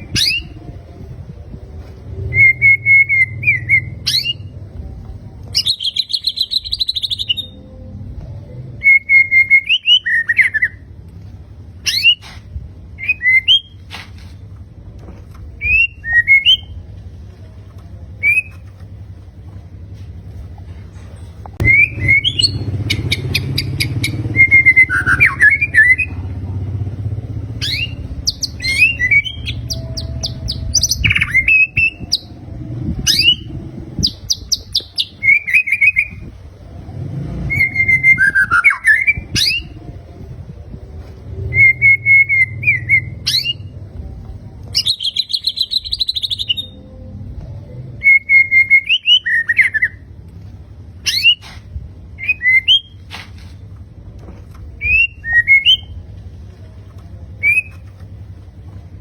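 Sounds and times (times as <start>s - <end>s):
bird singing: 5.5s - 7.8s, 21.6s - 26.2s, 27.5s - 36.3s, 44.7s - 47.1s, 54.8s - 56.0s, 57.4s - 57.8s.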